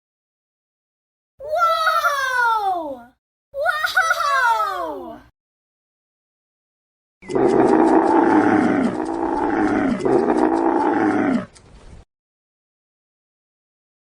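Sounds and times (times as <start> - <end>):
large animal roaring: 7.2 - 11.6.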